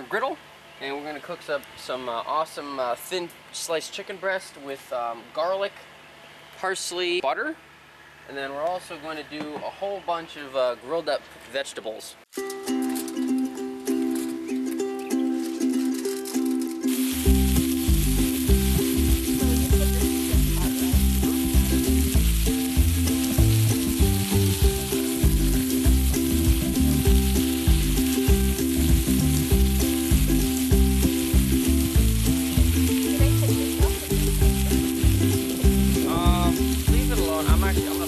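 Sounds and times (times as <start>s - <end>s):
chicken sizzling on a griddle: 15.9s - 38.0s
rhythmic low beat: 16.9s - 38.0s.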